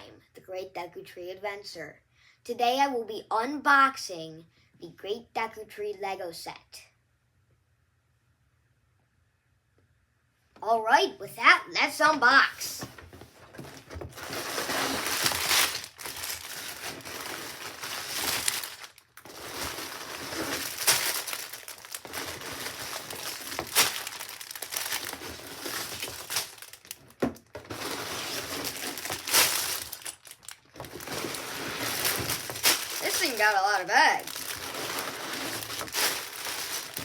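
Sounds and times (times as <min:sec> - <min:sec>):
plastic bags crinkling: 0:12.9 - 0:37.0
tearing sounds: 0:27.7 - 0:37.0.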